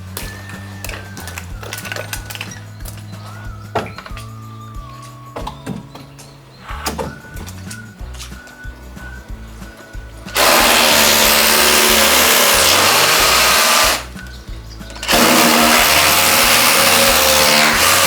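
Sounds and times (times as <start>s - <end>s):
power tool running: 10.3s - 14.1s, 15.0s - 18.0s.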